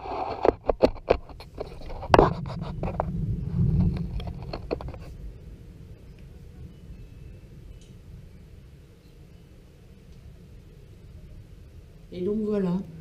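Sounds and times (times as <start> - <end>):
distant thunder rumbling: 1.5 - 13.0.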